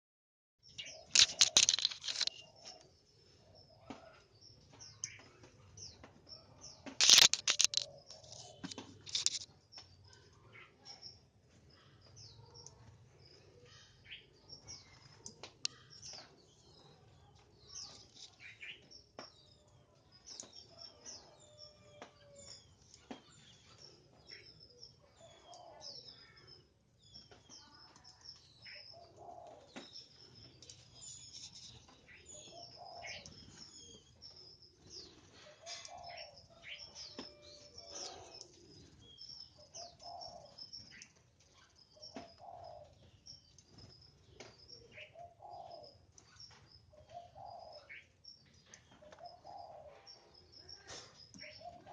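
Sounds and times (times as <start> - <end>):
birds chirping: 0.6 - 3.9, 4.5 - 9.8, 20.4 - 51.9.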